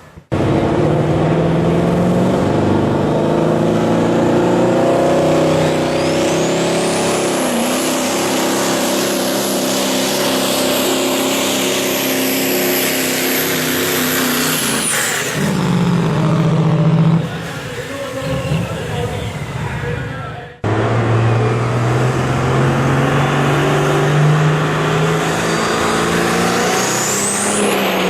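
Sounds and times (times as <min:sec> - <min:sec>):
diesel truck engine running hard: 0:00.0 - 0:28.0
turbocharger whistle: 0:05.0 - 0:16.8, 0:20.7 - 0:28.0.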